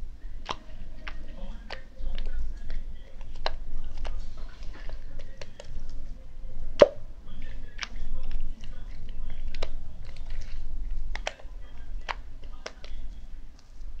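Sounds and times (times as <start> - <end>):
steady low hum: 0.0 - 14.0
slime clicking and popping: 0.4 - 5.9, 6.8 - 7.0, 7.7 - 13.1.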